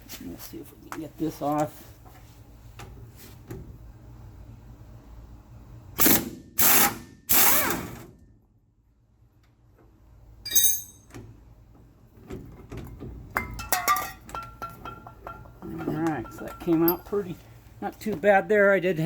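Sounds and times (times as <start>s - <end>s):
metal parts and tools clinking: 10.5s - 11.1s, 13.4s - 17.4s
short metallic ring: 10.5s - 11.1s.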